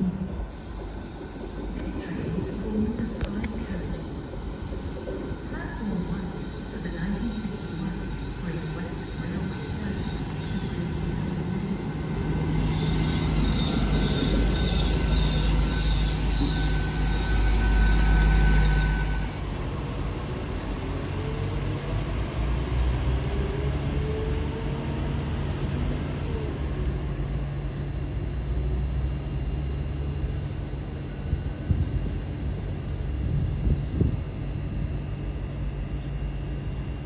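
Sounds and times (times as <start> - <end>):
train rumbling: 0.0 - 37.0
train wheels squealing: 4.5 - 24.0.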